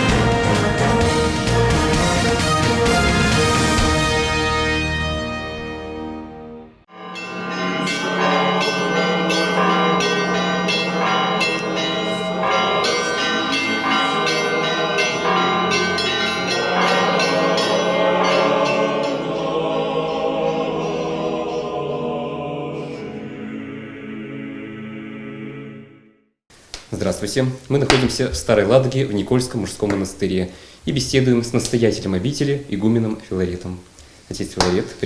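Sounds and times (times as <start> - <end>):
church bells ringing: 6.9 - 22.3.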